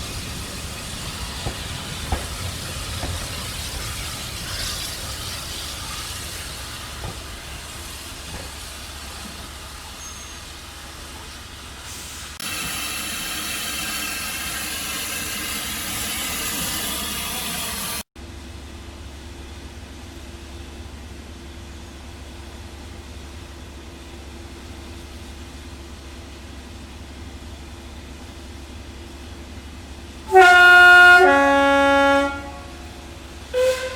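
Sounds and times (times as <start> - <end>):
steam hissing: 0.0 - 18.1
steam train running: 0.0 - 18.1, 22.5 - 33.9.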